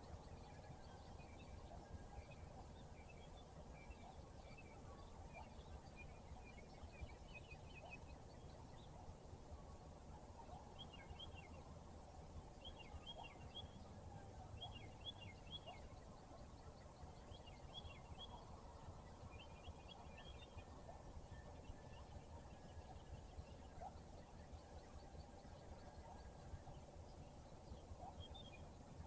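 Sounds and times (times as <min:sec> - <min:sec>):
songbird singing high falling notes: 0:12.6 - 0:18.5.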